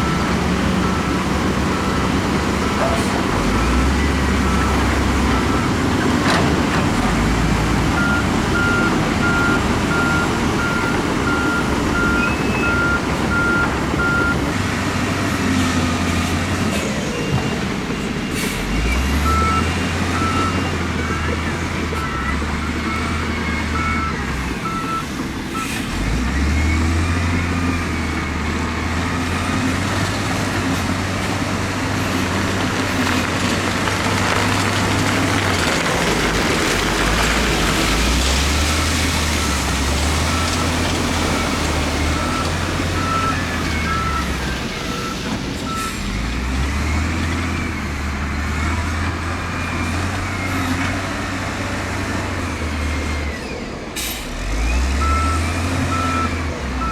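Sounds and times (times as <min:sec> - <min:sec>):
heavy diesel machinery working: 0:00.0 - 0:56.9
reversing alarm beeping: 0:17.1 - 0:25.8, 0:39.4 - 0:46.1, 0:54.9 - 0:56.9.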